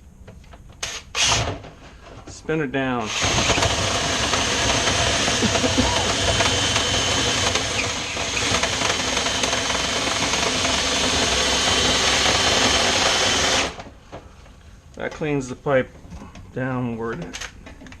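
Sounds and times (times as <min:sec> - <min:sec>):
power drill spinning vent brush: 0:03.0 - 0:13.8.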